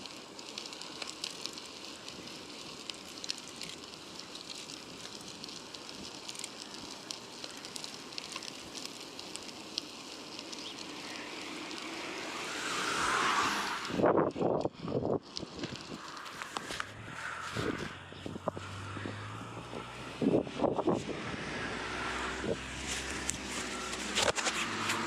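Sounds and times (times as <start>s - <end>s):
bicycle riding noise: 0.0s - 25.0s.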